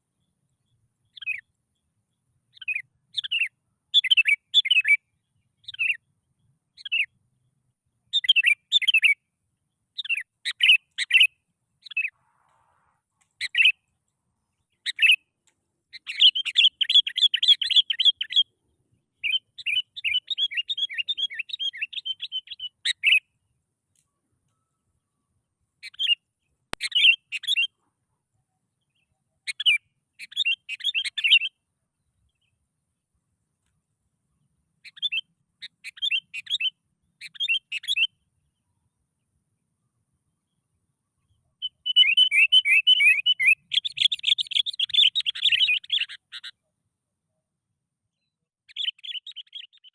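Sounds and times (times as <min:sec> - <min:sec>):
bulbul chirping song: 0:00.0 - 0:07.2, 0:08.1 - 0:12.2, 0:13.2 - 0:13.9, 0:14.6 - 0:23.4, 0:24.5 - 0:27.9, 0:28.7 - 0:32.6, 0:34.7 - 0:39.4, 0:40.4 - 0:46.7, 0:48.2 - 0:49.9
bird chattering: 0:41.8 - 0:46.5.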